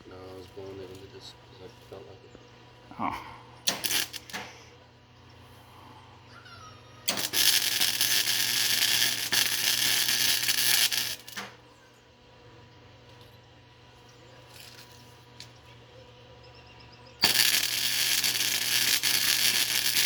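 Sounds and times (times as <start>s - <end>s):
welder arc crackling: 3.7s - 4.6s, 7.1s - 11.6s, 17.2s - 20.0s.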